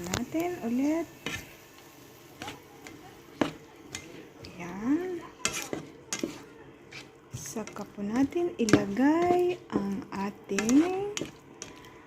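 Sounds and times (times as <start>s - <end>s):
utensil stirring food in a pan: 0.0s - 12.0s
utensil knocking and scraping pan: 2.4s - 11.9s.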